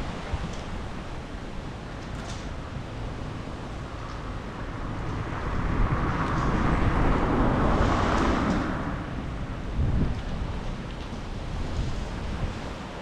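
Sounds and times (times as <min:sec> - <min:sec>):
steady wind: 0:00.0 - 0:13.0
car tyres hissing on wet street: 0:03.1 - 0:13.0.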